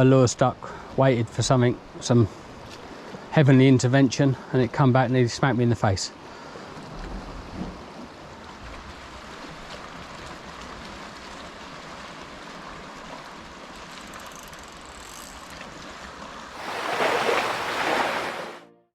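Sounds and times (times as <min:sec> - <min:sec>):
sea washing over rocks: 0:16.6 - 0:18.6
wave surging: 0:16.6 - 0:18.6.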